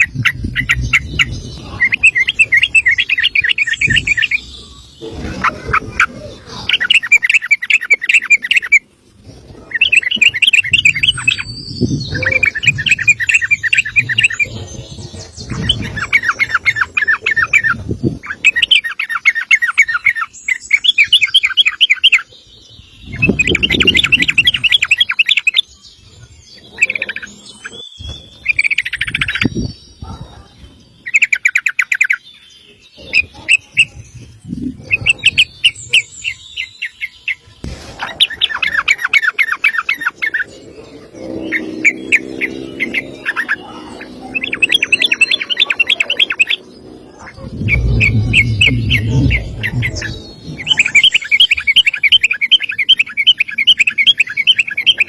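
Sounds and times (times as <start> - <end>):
bird song fast chattering notes: 0.0 - 55.0
low rumble: 46.6 - 51.1.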